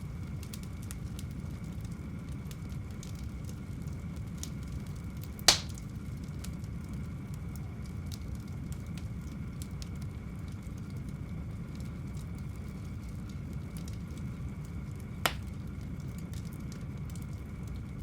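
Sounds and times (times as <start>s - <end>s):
wood fire crackling: 0.0s - 18.0s
loud sharp pop of fire: 5.5s - 5.9s, 15.2s - 15.6s.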